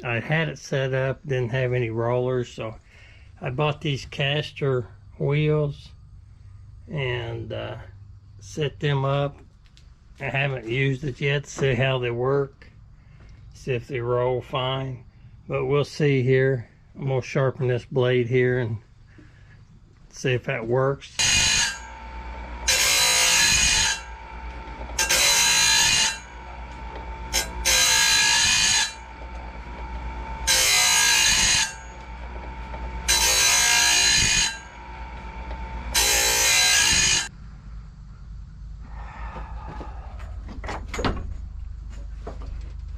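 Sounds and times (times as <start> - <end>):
grinding wheel on blade: 21.0 - 37.3
sharpener motor whine: 21.2 - 37.3.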